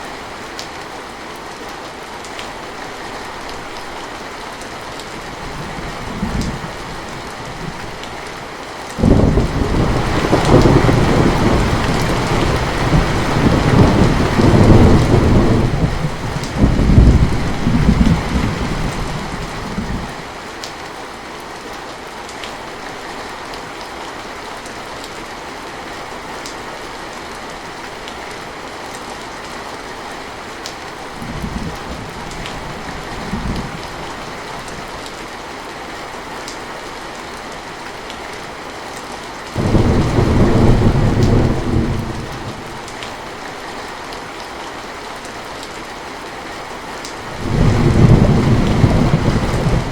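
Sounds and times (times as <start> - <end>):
heavy rain falling: 0.0 - 49.9
thunder rolling: 9.0 - 20.1, 39.6 - 42.9, 47.3 - 49.9.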